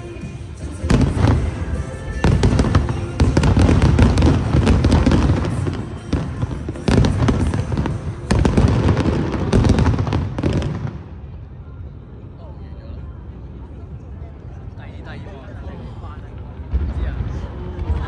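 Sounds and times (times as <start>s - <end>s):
fireworks crackling bursts: 0.0s - 11.4s
loud fireworks booms: 0.7s - 11.4s, 16.6s - 18.0s.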